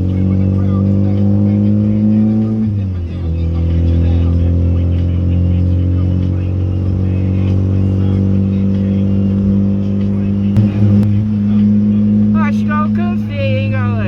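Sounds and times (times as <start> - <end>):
car engine droning: 10.2 - 13.0.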